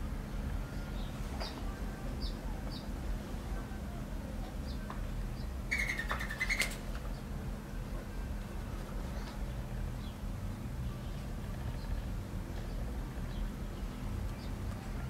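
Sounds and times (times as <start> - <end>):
birds chirping: 5.4 - 7.3.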